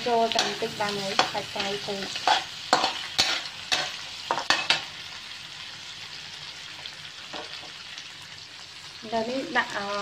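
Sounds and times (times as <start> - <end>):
metal spatula scraping wok: 0.0 - 4.9
crab sizzling in oil: 0.0 - 10.0.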